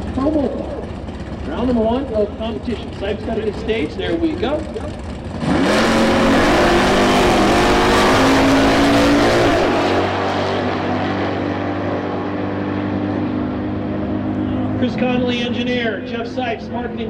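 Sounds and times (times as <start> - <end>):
cars accelerating at full throttle: 2.6 - 17.0.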